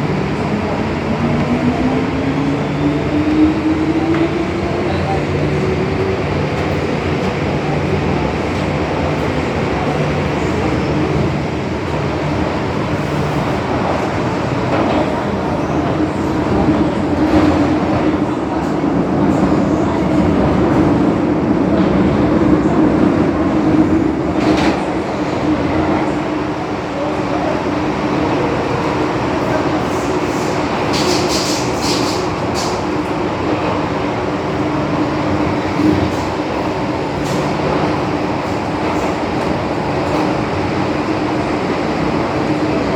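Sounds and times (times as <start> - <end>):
metro train wheels rumbling on rail: 0.0 - 42.9
train hum: 0.0 - 42.9.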